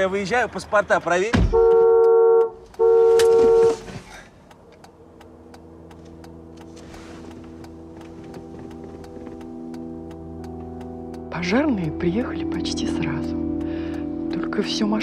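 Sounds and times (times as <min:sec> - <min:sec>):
regular ticking: 0:00.0 - 0:15.0
car horn blasts: 0:01.4 - 0:03.9.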